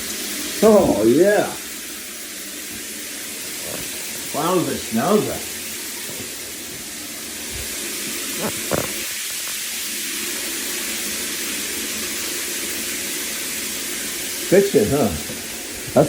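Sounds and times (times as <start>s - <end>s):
shower spray hissing: 0.0s - 16.0s.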